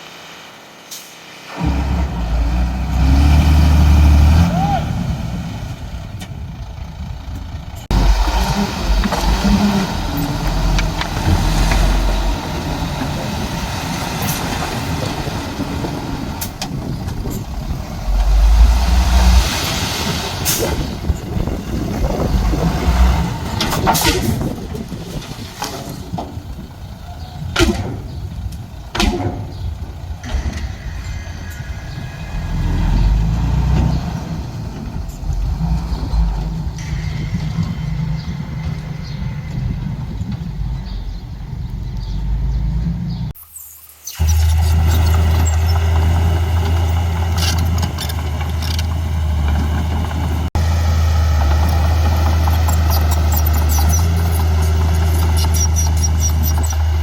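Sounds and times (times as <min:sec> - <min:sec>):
diesel engines running: 0:00.8 - 0:43.4, 0:44.2 - 0:57.0
sharp metallic clanks: 0:28.9 - 0:34.0
brief squeals: 0:30.2 - 0:33.4.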